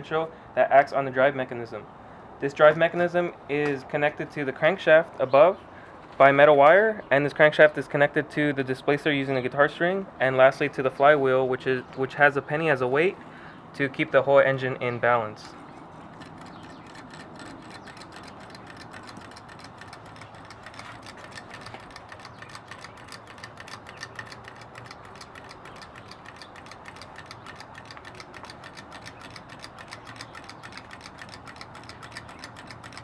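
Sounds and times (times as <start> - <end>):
small engine rapid ticking: 14.8 - 33.0.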